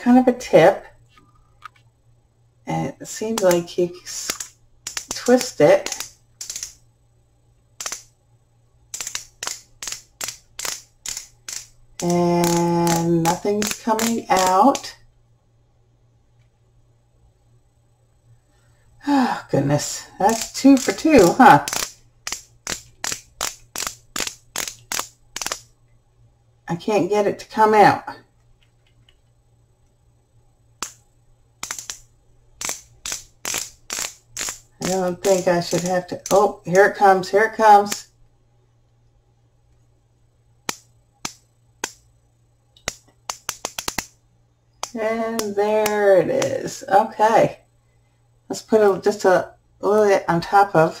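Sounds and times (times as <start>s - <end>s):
twist-up pen clicking: 3.3s - 6.8s, 7.8s - 8.1s, 8.9s - 15.0s, 20.3s - 25.7s, 30.8s - 31.0s, 31.6s - 36.8s, 40.6s - 42.1s, 42.8s - 44.2s.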